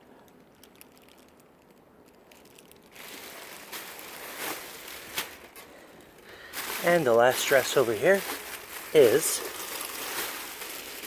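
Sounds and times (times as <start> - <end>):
fabric crinkling and rustling: 0.2 - 11.0
sharp fabric crackles: 2.2 - 5.8, 6.4 - 11.0.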